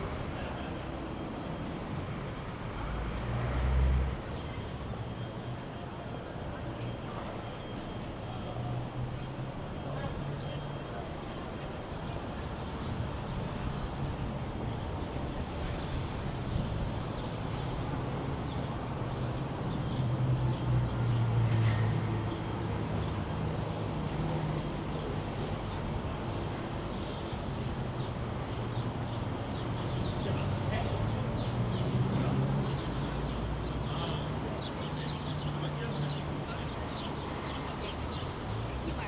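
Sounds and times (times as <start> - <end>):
hum of passing vehicles: 12.4 - 25.7, 29.6 - 39.0.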